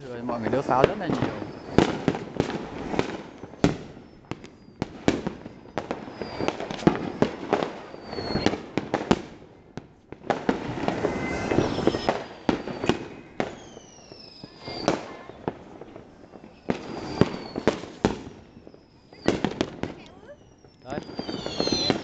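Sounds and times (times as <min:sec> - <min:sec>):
firecracker bangs and pops: 0:00.0 - 0:22.0
firecrackers crackling: 0:00.0 - 0:22.0
firework whistles falling in pitch: 0:00.0 - 0:22.0.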